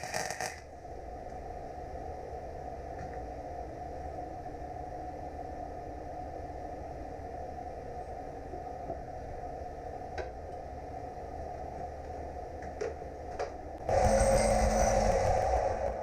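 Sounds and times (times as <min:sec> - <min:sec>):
welding arc crackling hiss: 0:00.0 - 0:00.7
workshop hum: 0:08.0 - 0:16.0.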